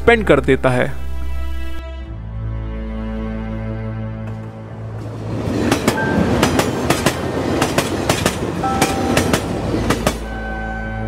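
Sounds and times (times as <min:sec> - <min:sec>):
clickety-clack over rail joints: 0:04.3 - 0:10.3
train wheels rumbling: 0:04.3 - 0:11.0.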